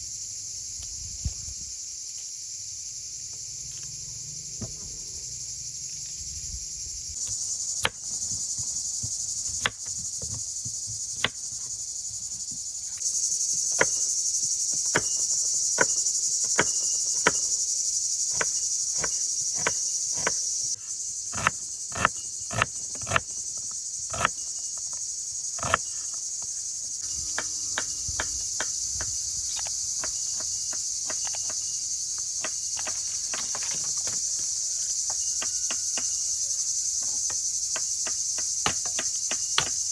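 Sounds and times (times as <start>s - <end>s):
insects chirping: 0.0s - 39.9s
sharp knocks: 37.0s - 39.9s.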